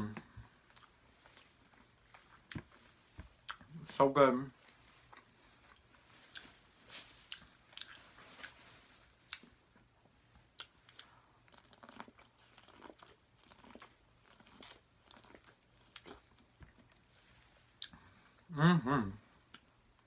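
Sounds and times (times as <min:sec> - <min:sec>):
person biting and chewing food: 0:00.5 - 0:03.8, 0:05.0 - 0:08.6, 0:09.3 - 0:17.1.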